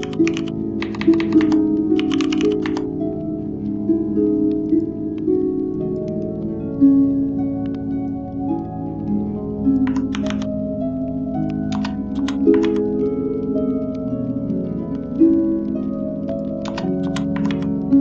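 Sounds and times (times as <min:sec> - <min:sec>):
computer keyboard typing: 0:00.0 - 0:02.9, 0:09.8 - 0:10.5, 0:11.7 - 0:12.8, 0:16.6 - 0:17.7
soft plucked harp-like music: 0:00.0 - 0:18.0.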